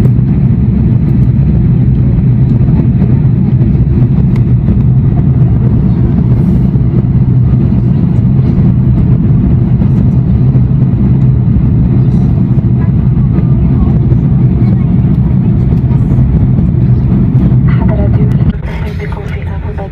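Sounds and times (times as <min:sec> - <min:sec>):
air rushing over airframe: 0:00.0 - 0:17.7
airplane cabin engine rumble: 0:00.0 - 0:19.9.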